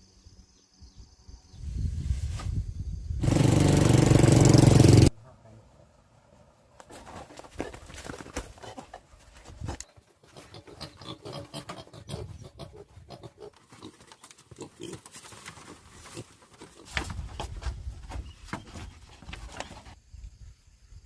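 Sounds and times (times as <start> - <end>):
rustling: 6.8 - 10.6, 13.4 - 20.0
pigs grunting: 10.2 - 15.2.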